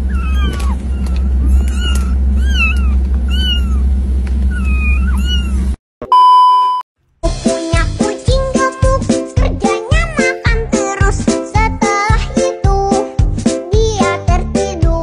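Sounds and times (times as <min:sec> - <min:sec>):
kittens mewing: 0:00.0 - 0:05.8
test-tone beep: 0:06.0 - 0:06.8
music with a beat: 0:07.3 - 0:15.0.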